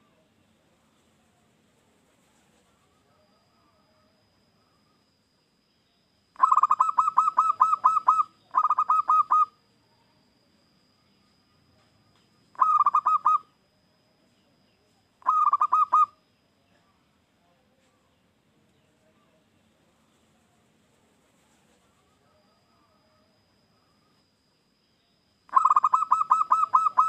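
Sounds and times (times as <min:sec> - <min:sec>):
dove cooing in staccato notes: 0:06.4 - 0:09.6, 0:12.6 - 0:13.5, 0:15.2 - 0:16.2, 0:25.5 - 0:27.0.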